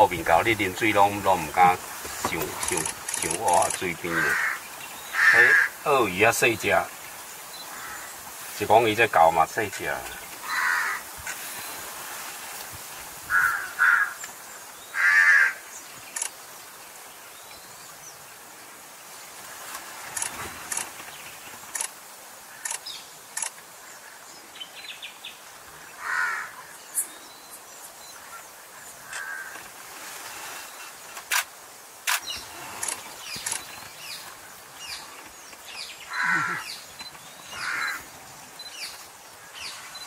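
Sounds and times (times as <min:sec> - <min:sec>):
lower bird calls: 0:00.0 - 0:12.0, 0:13.3 - 0:16.3, 0:32.1 - 0:40.0
steady background hiss: 0:00.0 - 0:40.0.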